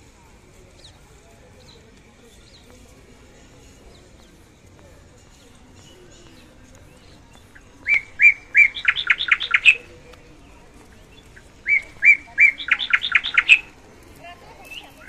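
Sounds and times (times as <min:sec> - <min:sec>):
bird calling loudly: 0:07.8 - 0:09.9, 0:11.4 - 0:13.8.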